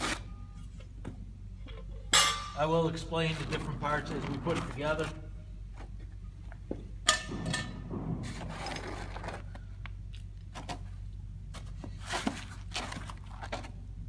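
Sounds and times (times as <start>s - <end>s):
low hum: 0.2s - 11.6s
furniture parts knocking: 6.6s - 9.6s
packing foam rustling: 8.3s - 14.0s.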